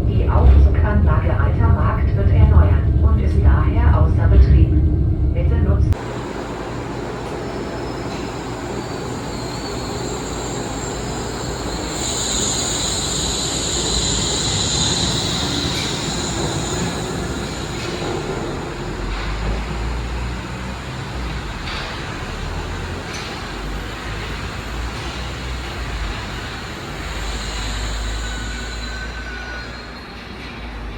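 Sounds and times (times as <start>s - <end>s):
railway car rumbling: 0.0s - 30.9s
high wheel squeal: 7.4s - 19.3s, 23.7s - 30.8s.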